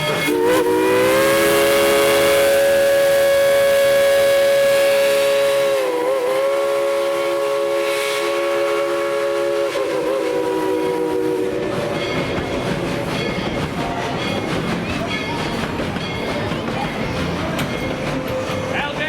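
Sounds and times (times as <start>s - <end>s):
steam locomotive whistle blowing: 0.0s - 12.4s.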